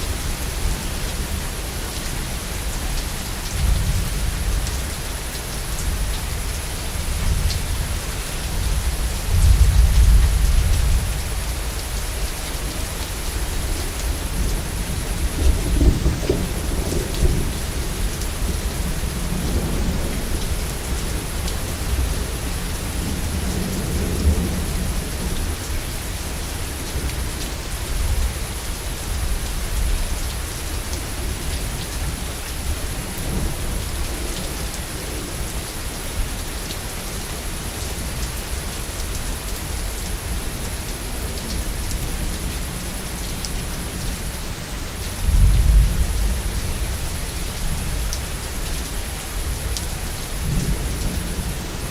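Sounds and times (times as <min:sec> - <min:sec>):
heavy rain falling: 0:00.0 - 0:51.9
thunder rumbling: 0:13.5 - 0:21.2.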